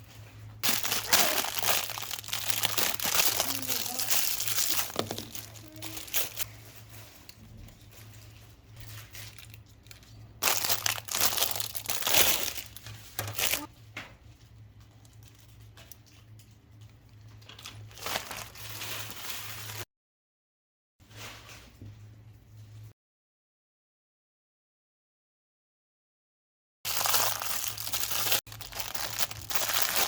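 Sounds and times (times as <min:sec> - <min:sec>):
plastic packaging crinkling: 0:00.6 - 0:13.7, 0:17.2 - 0:19.8, 0:26.9 - 0:30.0.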